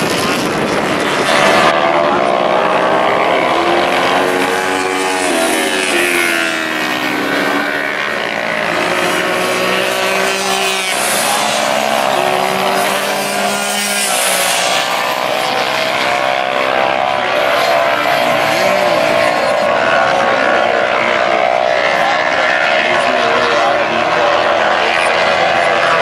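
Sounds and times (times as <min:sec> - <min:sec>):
motorcycles rushing past: 0:00.0 - 0:26.0
racing motorcycles at full throttle: 0:00.0 - 0:26.0.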